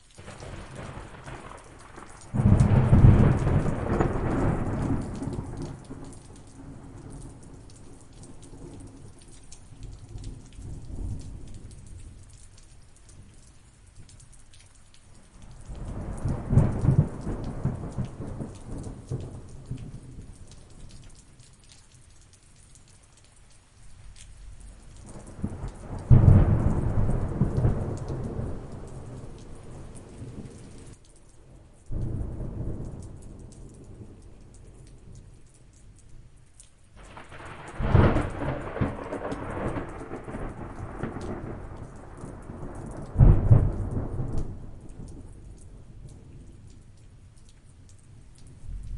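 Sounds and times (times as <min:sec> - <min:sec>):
rain pattering: 0:00.0 - 0:48.9
rolling thunder: 0:00.2 - 0:09.2, 0:15.6 - 0:20.4, 0:25.0 - 0:31.0, 0:31.9 - 0:34.8, 0:37.0 - 0:45.5.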